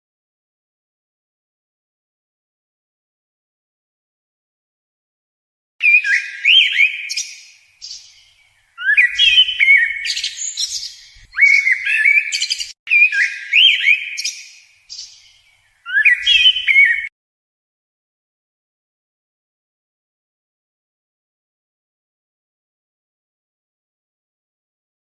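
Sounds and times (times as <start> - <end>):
songbird singing whistled notes: 5.8 - 17.1.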